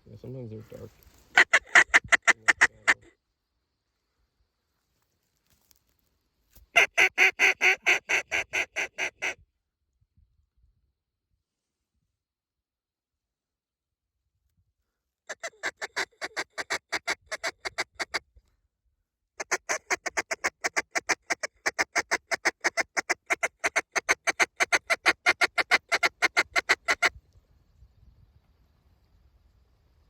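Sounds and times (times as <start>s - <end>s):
duck call quacks: 1.3s - 3.1s, 6.8s - 9.4s, 15.3s - 18.2s, 19.4s - 27.1s.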